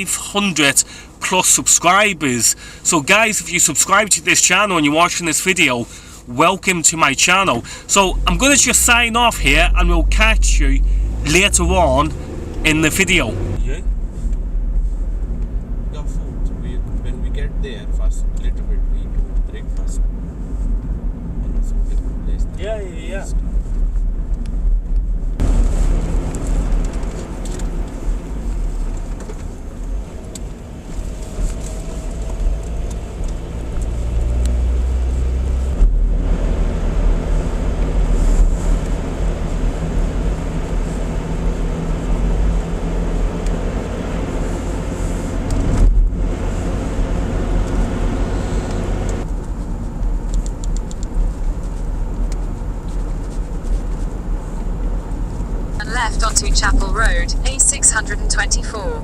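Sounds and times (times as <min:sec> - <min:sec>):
car engine: 0:00.0 - 0:59.0
road rumble and tyre noise: 0:00.0 - 0:59.0.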